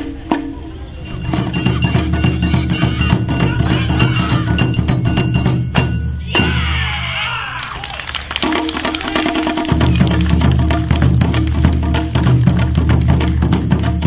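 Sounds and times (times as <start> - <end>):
steady bass: 0.0 - 6.7
percussion strikes: 0.0 - 7.0, 8.0 - 14.0
bell-like ringing tones: 0.9 - 6.6
sliding melody: 1.0 - 6.4.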